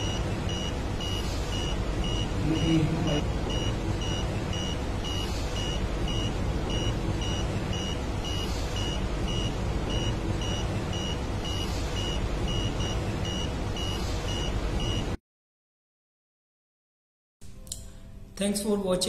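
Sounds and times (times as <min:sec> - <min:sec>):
buzzer beeping: 0:00.0 - 0:15.2.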